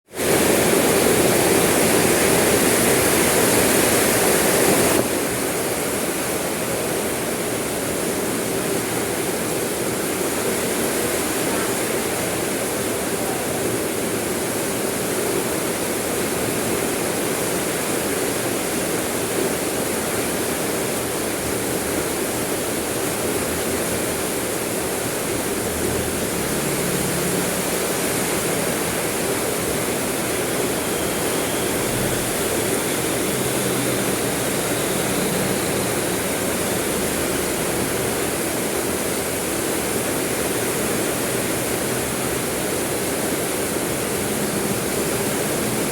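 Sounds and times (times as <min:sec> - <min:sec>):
heavy rain hissing: 0:00.0 - 0:45.9.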